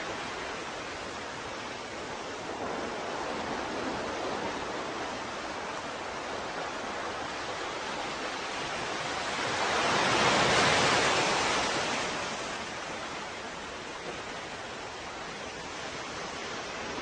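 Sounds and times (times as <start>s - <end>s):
ocean surf hiss: 0.0s - 17.0s.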